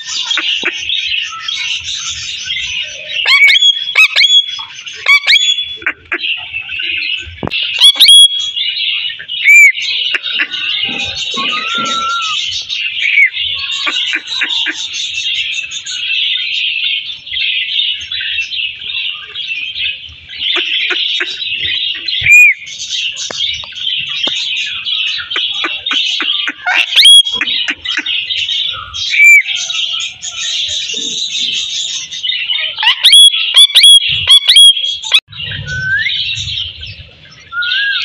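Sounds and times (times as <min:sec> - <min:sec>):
loud short whistling calls: 0:07.7 - 0:08.6, 0:10.8 - 0:13.9
parrots chattering: 0:07.7 - 0:08.6, 0:09.4 - 0:12.4, 0:25.2 - 0:28.4.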